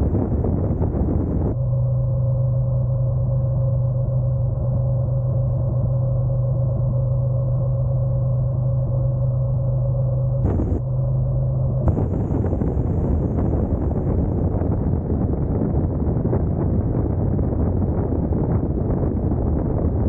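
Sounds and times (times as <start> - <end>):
rushing wind: 0.0 - 1.6, 10.0 - 20.0.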